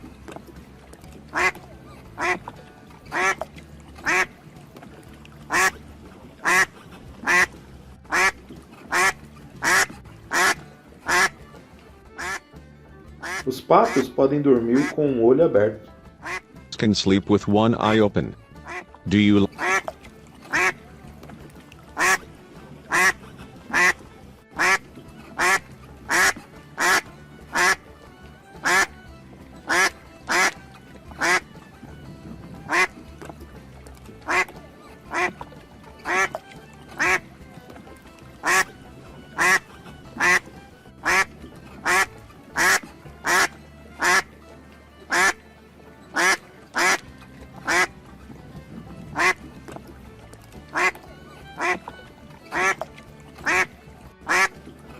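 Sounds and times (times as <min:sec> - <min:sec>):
music: 0:00.0 - 0:54.9
duck quacking: 0:01.3 - 0:01.6, 0:02.2 - 0:02.5, 0:03.1 - 0:03.4, 0:04.0 - 0:04.3, 0:05.5 - 0:05.8, 0:06.4 - 0:07.5, 0:08.1 - 0:11.4, 0:12.2 - 0:12.4, 0:13.2 - 0:14.1, 0:14.8 - 0:15.0, 0:16.2 - 0:16.4, 0:18.6 - 0:19.9, 0:20.5 - 0:20.8, 0:22.0 - 0:22.3, 0:22.9 - 0:24.0, 0:24.6 - 0:24.8, 0:25.4 - 0:27.8, 0:28.6 - 0:28.9, 0:29.7 - 0:30.6, 0:31.2 - 0:31.5, 0:32.6 - 0:33.0, 0:34.2 - 0:34.5, 0:35.1 - 0:35.4, 0:36.0 - 0:36.4, 0:37.0 - 0:37.2, 0:38.4 - 0:44.3, 0:45.1 - 0:45.4, 0:46.1 - 0:47.0, 0:47.6 - 0:47.9, 0:49.1 - 0:49.4, 0:50.7 - 0:51.9, 0:52.5 - 0:52.8, 0:53.4 - 0:54.6.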